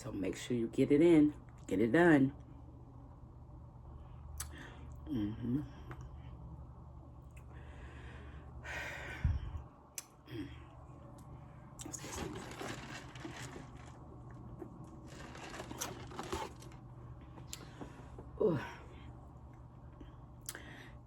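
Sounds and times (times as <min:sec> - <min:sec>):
steady low hum: 0:00.0 - 0:21.0
chewing crunchy fried chicken: 0:11.8 - 0:16.8.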